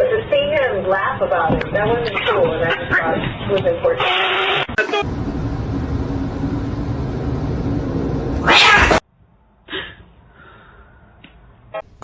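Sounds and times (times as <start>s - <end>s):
cat growling: 8.4s - 9.0s.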